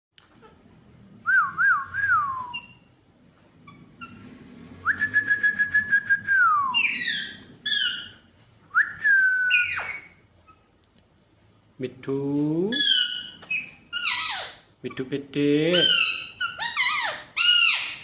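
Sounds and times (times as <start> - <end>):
parrot whistling: 1.3 - 2.9, 4.8 - 8.2, 8.8 - 10.2, 15.7 - 18.0
harsh parrot calls: 6.7 - 8.3, 9.4 - 10.7, 12.7 - 15.1, 15.7 - 18.0.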